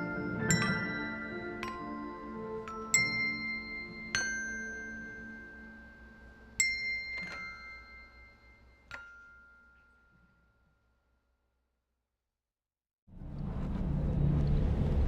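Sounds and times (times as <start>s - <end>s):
bell-like chime tones: 0.0s - 11.2s.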